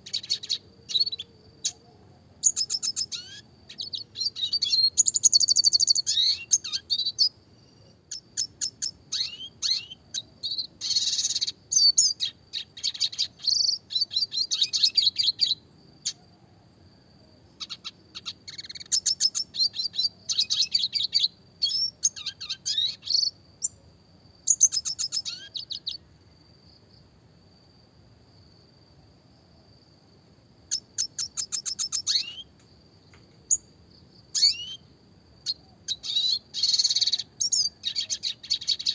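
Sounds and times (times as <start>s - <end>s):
faint steady high tone: 0.0s - 8.2s
bird chirping and trilling: 0.1s - 1.8s, 2.4s - 16.2s, 17.6s - 23.8s, 24.5s - 26.0s, 30.7s - 32.5s, 34.3s - 38.9s.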